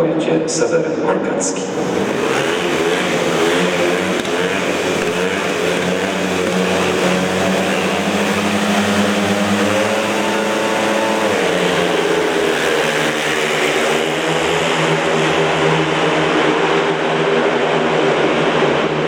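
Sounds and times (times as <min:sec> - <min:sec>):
motorcycle engines running: 0:01.6 - 0:19.0.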